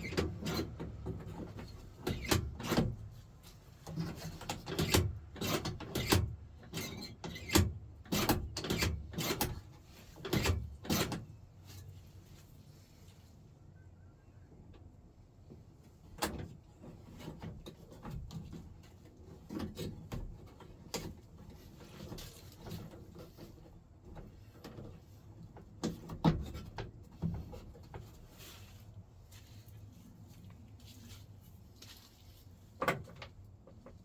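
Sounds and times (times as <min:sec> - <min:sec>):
clicks and clunks of hand work: 0:00.0 - 0:11.9, 0:15.5 - 0:28.7, 0:32.7 - 0:34.0.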